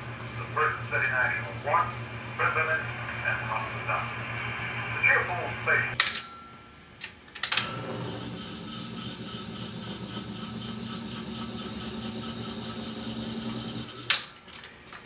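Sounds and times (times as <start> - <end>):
wire recorder motor humming: 0.0 - 6.0, 7.6 - 14.3.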